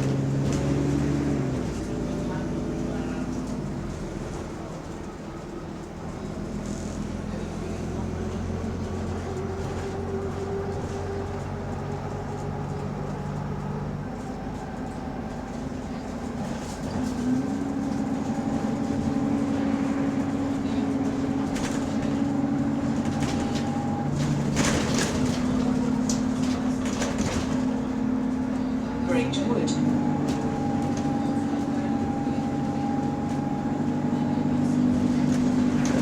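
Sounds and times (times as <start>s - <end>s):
bus engine droning: 0.0s - 36.0s
rattles and knocks: 21.4s - 28.0s.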